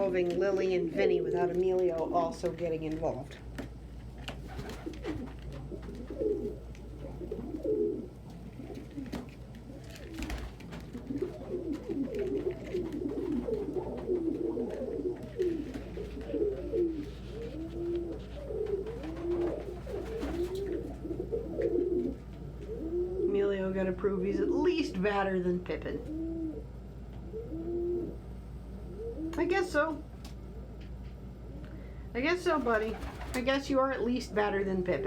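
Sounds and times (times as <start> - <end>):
pigeons cooing: 4.4 - 23.6, 26.0 - 29.7, 32.7 - 33.5.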